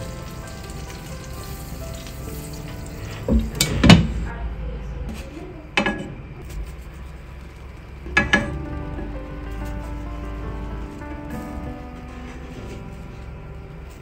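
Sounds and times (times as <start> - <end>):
oil sizzling under pancakes: 0.0 - 3.7
background music: 0.0 - 4.9, 8.1 - 14.0.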